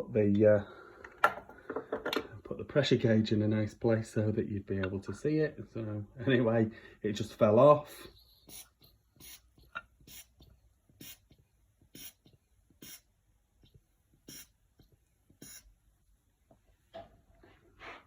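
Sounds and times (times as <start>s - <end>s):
hand pump air hissing: 8.4s - 13.1s, 14.2s - 14.5s, 15.4s - 15.7s.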